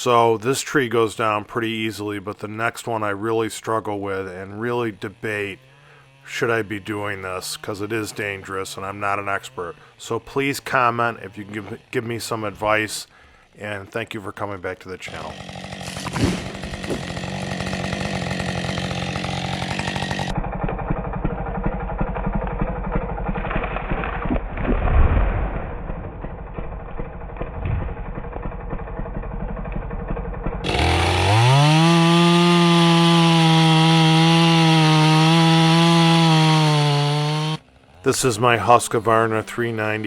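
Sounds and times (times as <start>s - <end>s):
chainsaw running: 2.2s - 24.3s, 25.8s - 40.0s
loud low thud: 24.3s - 26.6s, 27.4s - 28.2s.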